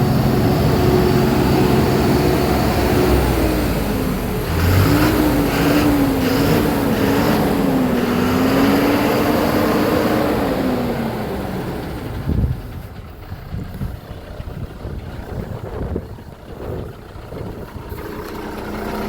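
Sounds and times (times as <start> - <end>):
heavy truck engine running: 0.0 - 19.0.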